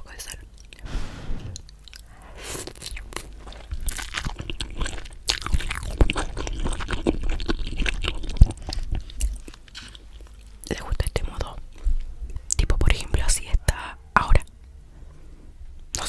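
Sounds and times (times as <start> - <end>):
person chewing crunchy food: 1.6 - 10.6.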